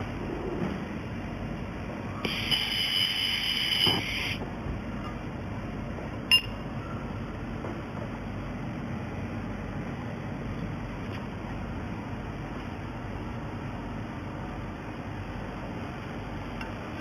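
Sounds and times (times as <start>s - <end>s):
steady background rumble: 0.0s - 17.0s.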